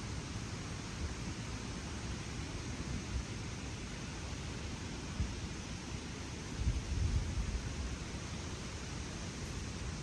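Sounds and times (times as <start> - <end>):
wind on microphone: 6.5 - 7.8.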